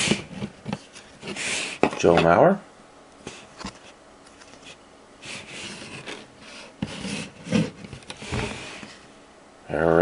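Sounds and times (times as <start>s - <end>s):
trading cards sliding: 0.0s - 1.8s, 3.2s - 9.0s.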